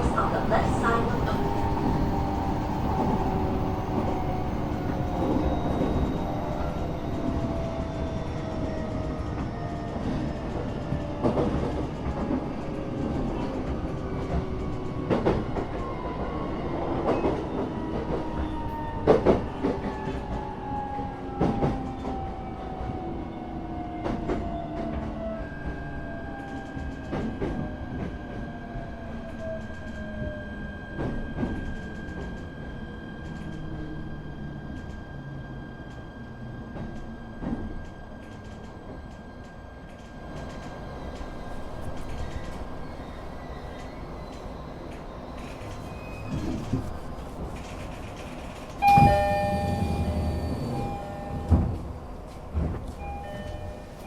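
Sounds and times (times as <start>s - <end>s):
train wheels rumbling on rail: 0.0s - 54.0s
track clacks and knocks: 43.8s - 54.0s
steady high tone: 48.8s - 51.9s
train motor whine: 48.8s - 51.9s.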